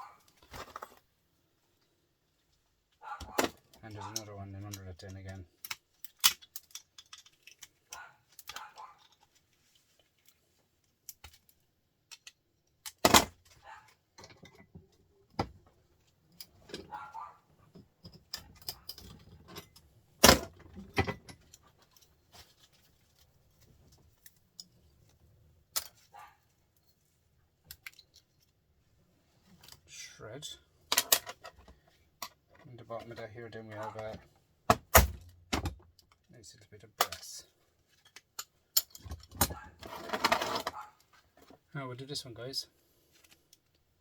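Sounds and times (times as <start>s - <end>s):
metal parts clinking: 4.0s - 9.3s, 18.0s - 22.9s.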